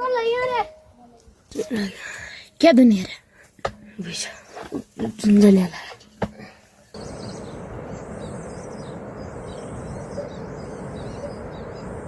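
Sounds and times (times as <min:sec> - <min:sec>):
small birds chirping: 0:06.7 - 0:12.0.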